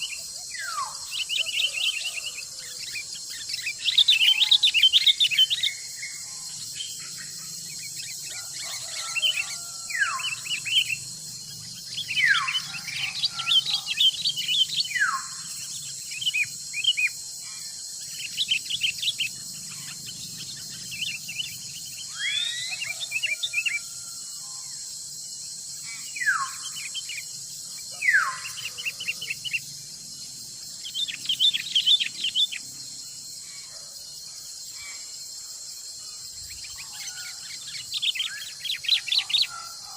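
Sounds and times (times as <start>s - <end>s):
birds chirping: 0.0s - 24.1s, 25.6s - 33.8s, 36.0s - 39.9s
insect drone: 0.0s - 39.9s
bird whistles: 22.1s - 23.4s.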